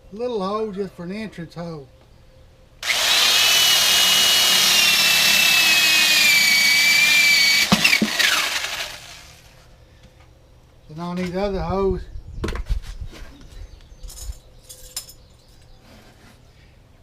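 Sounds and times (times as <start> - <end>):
electric drill boring wood: 2.8 - 9.5.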